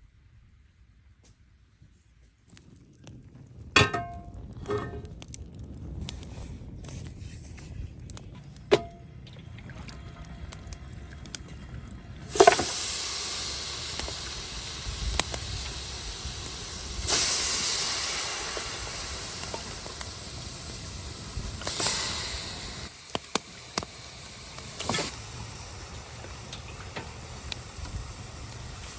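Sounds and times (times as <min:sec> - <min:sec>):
meat sizzling: 0:12.3 - 0:28.9.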